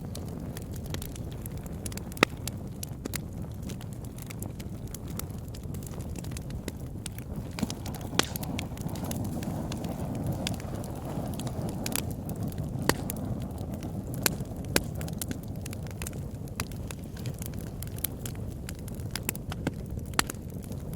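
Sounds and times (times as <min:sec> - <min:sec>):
sharp fire pops: 0:00.0 - 0:20.9
wood fire crackling: 0:00.0 - 0:20.9.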